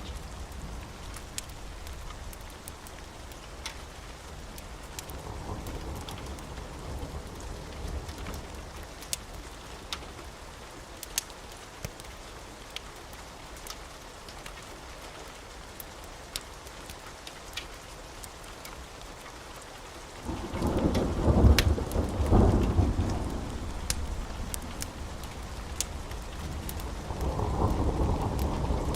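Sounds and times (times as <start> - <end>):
steady rain: 0.0 - 28.9
thunder rumbling: 20.2 - 28.9.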